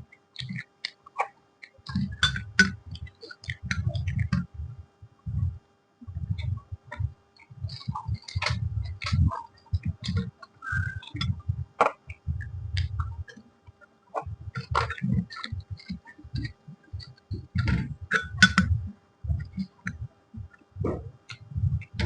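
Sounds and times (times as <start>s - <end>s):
person chewing food: 6.2s - 22.0s
wet mouth clicks and smacks: 6.3s - 18.8s.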